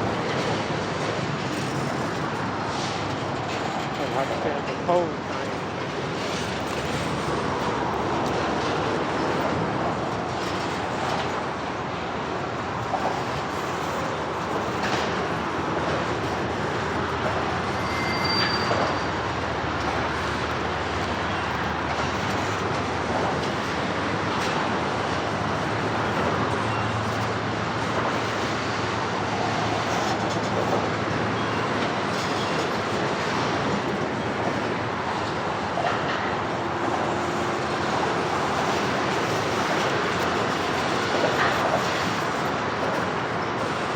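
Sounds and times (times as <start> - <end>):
train rolling past: 0.0 - 43.9
high-pitched wheel squeal: 17.5 - 19.4.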